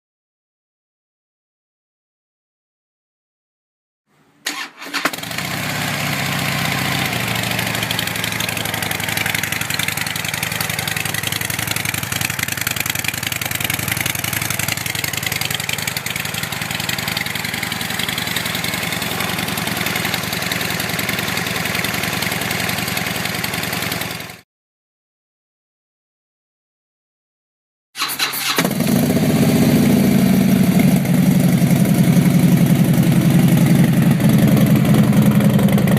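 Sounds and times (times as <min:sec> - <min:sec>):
motorcycle engine idling: 0:05.1 - 0:24.4, 0:28.0 - 0:35.9.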